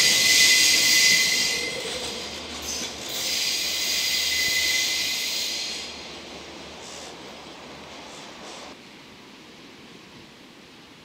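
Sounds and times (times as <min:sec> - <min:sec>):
high wheel squeal: 0:00.0 - 0:05.8
wheels hissing on rail: 0:00.0 - 0:08.8.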